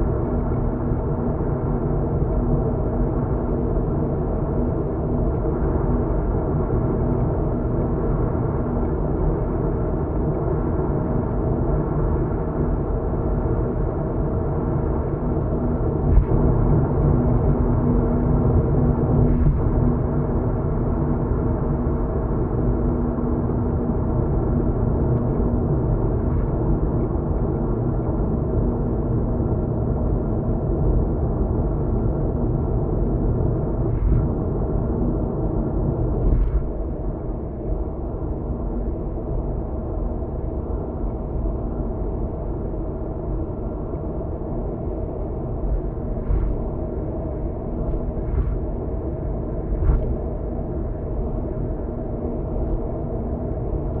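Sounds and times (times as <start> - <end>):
road and engine rumble: 0.0 - 54.0.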